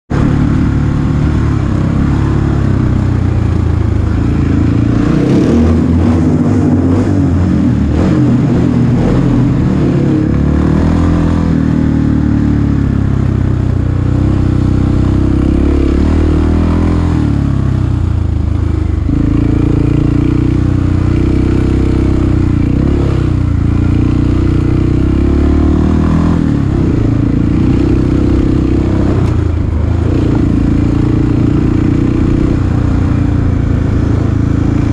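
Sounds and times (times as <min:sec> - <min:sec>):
dirt bike engines revving: 0:00.1 - 0:17.4.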